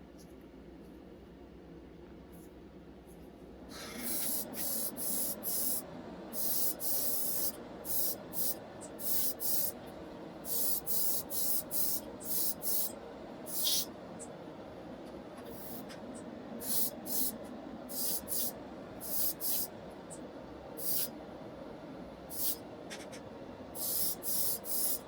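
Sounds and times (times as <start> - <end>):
paint spraying hisses: 3.7 - 9.8, 10.4 - 13.9, 15.5 - 15.9, 16.6 - 19.7, 20.8 - 21.1, 22.3 - 22.6, 23.8 - 25.0.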